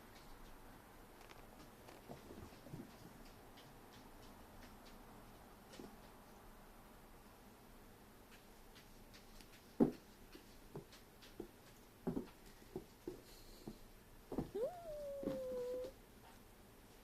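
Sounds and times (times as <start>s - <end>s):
pet tapping and thumping on floor: 1.4s - 6.2s, 8.3s - 15.9s.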